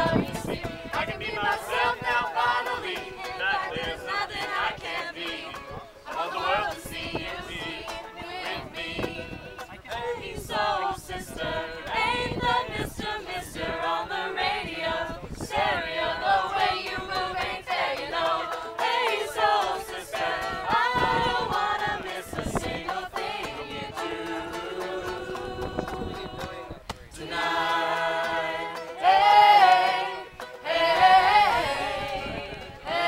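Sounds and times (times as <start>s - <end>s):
group of people singing: 0.0s - 33.0s.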